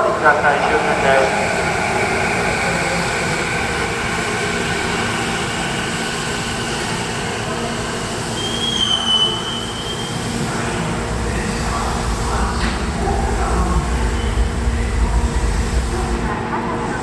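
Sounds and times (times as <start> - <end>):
electric train rumbling: 0.0 - 17.0
high wheel squeal: 0.8 - 16.2.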